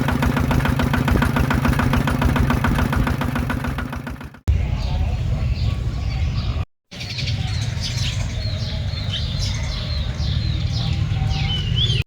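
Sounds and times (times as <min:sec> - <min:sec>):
small birds chirping: 0:04.5 - 0:12.0.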